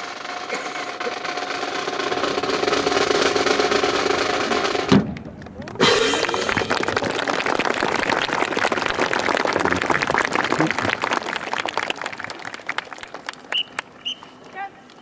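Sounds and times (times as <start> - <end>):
audience applauding: 5.1 - 14.3.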